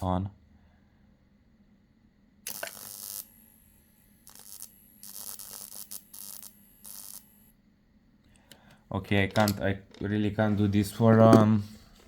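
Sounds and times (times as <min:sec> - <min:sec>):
transformer buzzing: 0:02.5 - 0:07.5.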